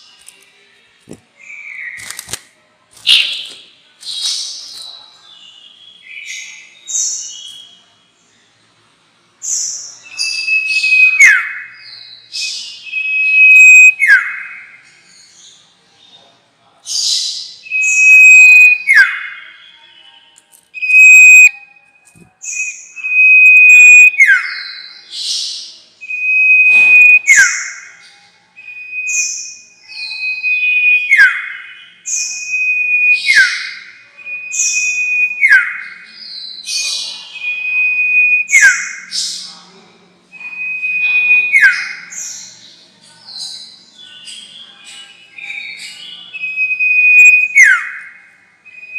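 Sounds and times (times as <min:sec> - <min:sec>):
songbird whistling calls: 0:03.1 - 0:03.6, 0:09.4 - 0:14.7, 0:17.0 - 0:19.9, 0:20.8 - 0:25.4, 0:26.0 - 0:39.4, 0:40.4 - 0:42.5, 0:43.6 - 0:48.1, 0:48.7 - 0:48.9.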